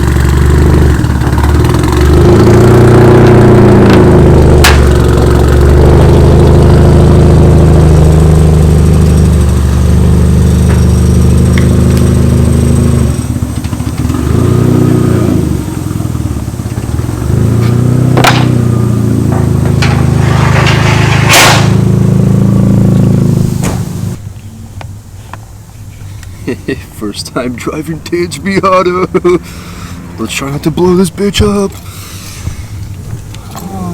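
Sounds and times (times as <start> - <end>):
car engine revving: 0.0 - 24.2
sharp exhaust cracks: 0.0 - 33.9.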